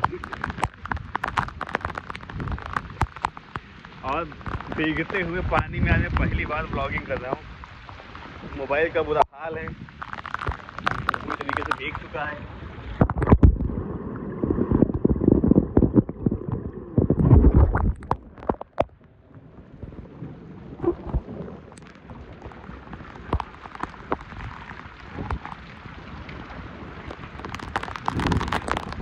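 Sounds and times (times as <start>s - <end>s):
heavy rain pouring: 0.0s - 12.4s, 20.8s - 29.0s
raindrops hitting microphone: 0.0s - 29.0s.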